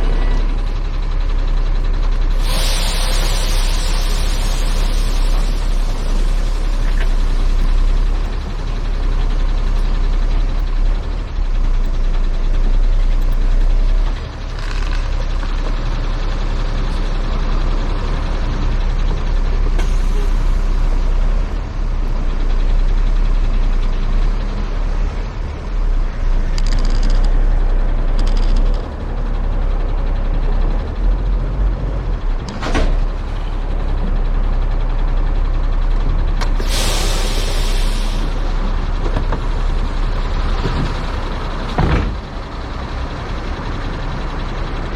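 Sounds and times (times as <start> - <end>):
truck engine rumbling: 0.0 - 44.9
short hisses: 2.3 - 7.8, 36.6 - 38.5.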